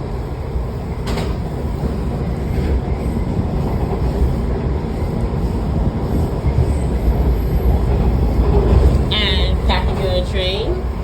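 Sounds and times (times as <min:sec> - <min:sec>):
train rumbling on tracks: 0:00.0 - 0:11.0.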